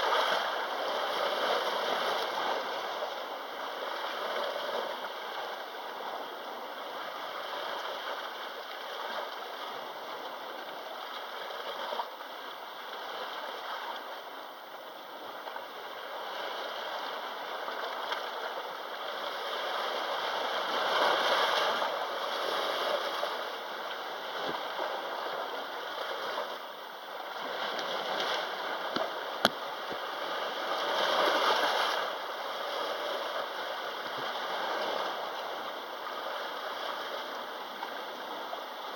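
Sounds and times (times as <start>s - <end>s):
sea waves washing: 15.4s - 38.9s.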